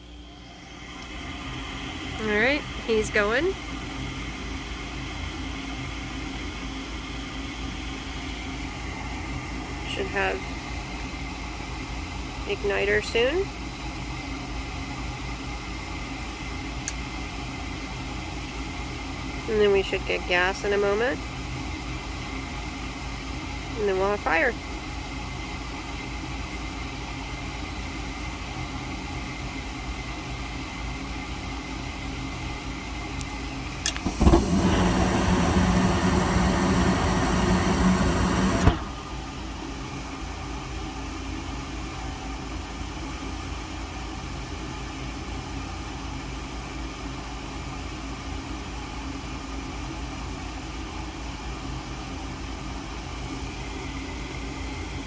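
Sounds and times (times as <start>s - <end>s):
furnace fan running: 0.0s - 55.0s
gas flame rushing: 0.7s - 6.4s, 33.6s - 40.4s
ignition click: 33.2s - 39.1s.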